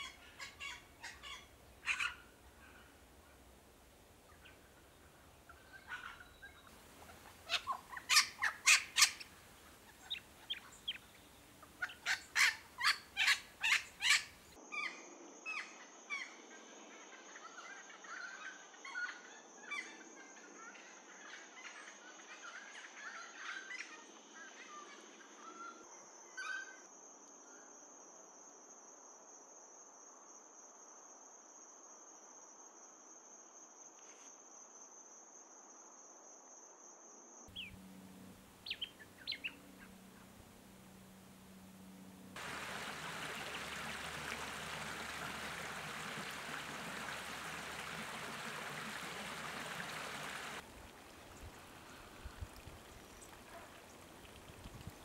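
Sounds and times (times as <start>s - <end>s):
bird chattering calls: 5.7s - 14.4s, 37.5s - 41.5s
bird harsh cackling notes: 7.0s - 11.0s.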